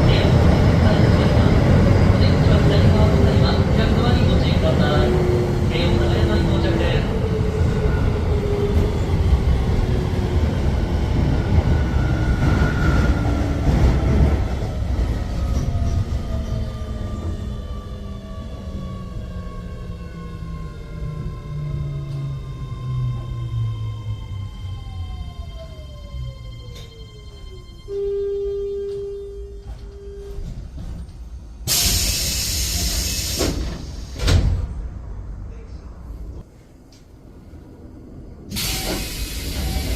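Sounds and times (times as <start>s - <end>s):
electric train rumbling: 0.0s - 39.9s
compressed air hissing: 31.7s - 34.2s, 38.5s - 39.9s.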